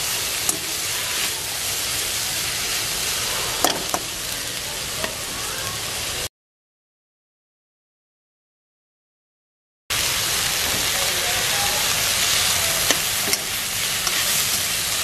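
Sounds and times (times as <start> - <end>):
vegetables sizzling in oil: 0.0 - 6.3, 9.9 - 15.0.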